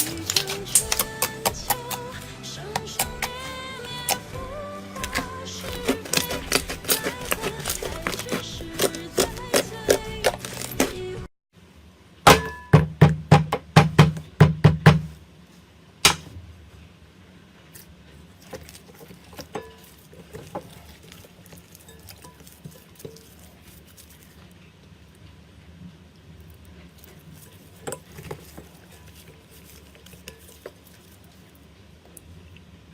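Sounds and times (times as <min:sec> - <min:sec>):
soft slime crackling: 0:00.0 - 0:02.2, 0:02.8 - 0:11.1, 0:17.8 - 0:24.8, 0:26.9 - 0:31.6.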